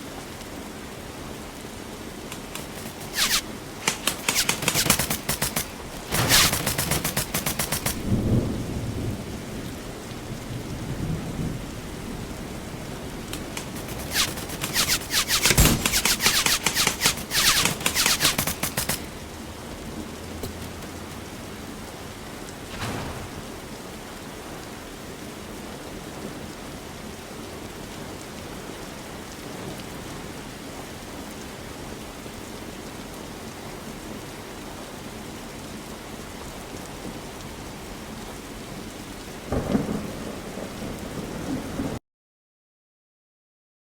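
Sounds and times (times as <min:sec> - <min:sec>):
airsoft gun firing bursts: 0:02.3 - 0:08.4, 0:13.2 - 0:19.2.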